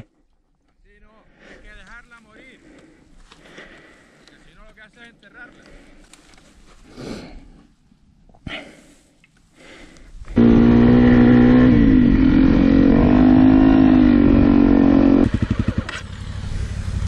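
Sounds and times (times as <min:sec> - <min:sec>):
motorcycle engine at high revs: 0:10.3 - 0:17.0.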